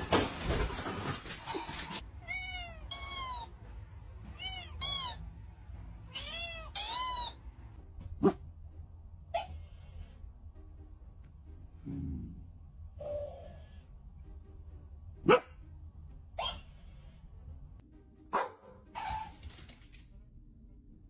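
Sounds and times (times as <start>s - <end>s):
cat meowing: 6.1s - 7.4s.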